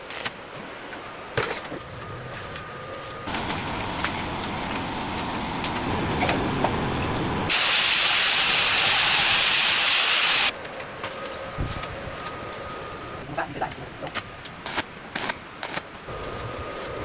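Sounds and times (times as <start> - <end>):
loud spraying hiss: 3.3 - 10.5.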